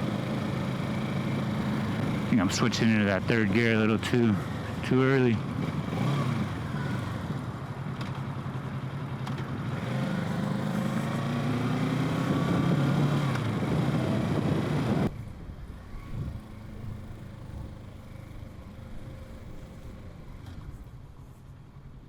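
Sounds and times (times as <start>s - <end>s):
motorcycle engine accelerating: 0.0s - 15.1s.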